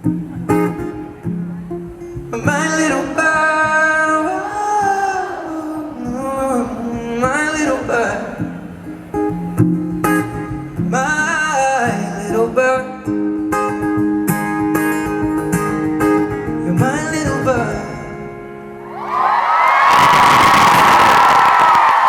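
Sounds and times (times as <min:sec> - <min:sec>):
acoustic guitar: 0:00.0 - 0:19.4
person singing wordlessly: 0:02.4 - 0:08.8
audience cheering and screaming: 0:04.3 - 0:08.5, 0:18.8 - 0:22.0.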